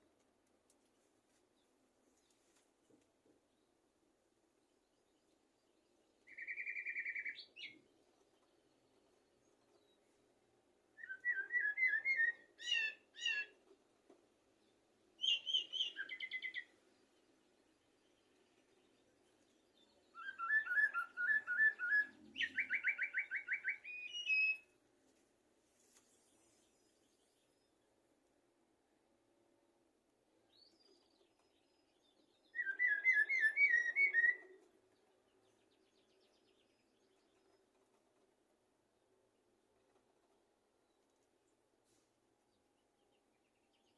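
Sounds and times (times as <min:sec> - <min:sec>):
blackbird singing: 0:06.2 - 0:07.9, 0:11.0 - 0:13.6, 0:15.2 - 0:16.8, 0:18.0 - 0:24.7, 0:30.5 - 0:34.6.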